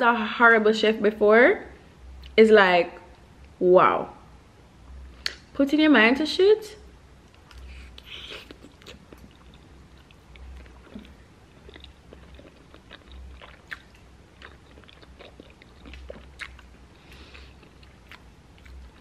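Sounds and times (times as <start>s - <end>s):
person chewing: 7.3s - 19.0s.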